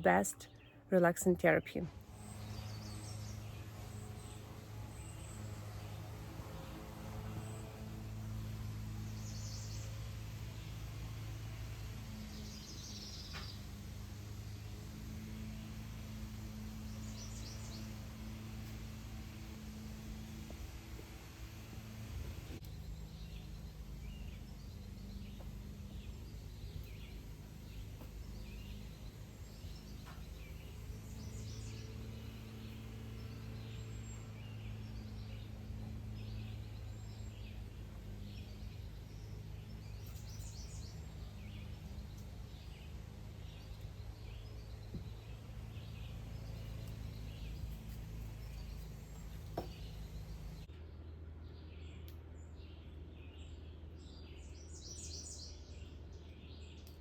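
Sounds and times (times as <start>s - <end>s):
small birds chirping: 0.0s - 57.0s
steady low hum: 0.0s - 57.0s.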